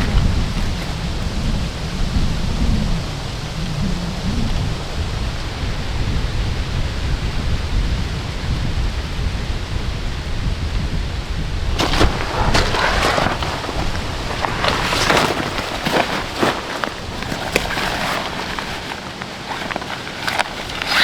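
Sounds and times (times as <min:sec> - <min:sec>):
sharp rustles and crunches: 0:11.8 - 0:21.0
steady rain: 0:11.8 - 0:21.0.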